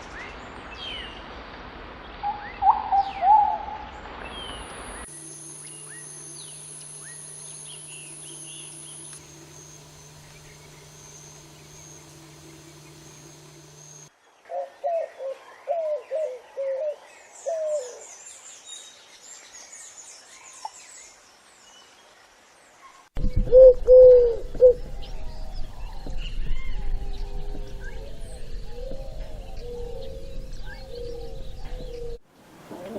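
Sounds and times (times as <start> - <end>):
birds calling with low notes: 2.3 - 18.7, 23.2 - 32.9
faint high bird chirps: 4.3 - 14.6.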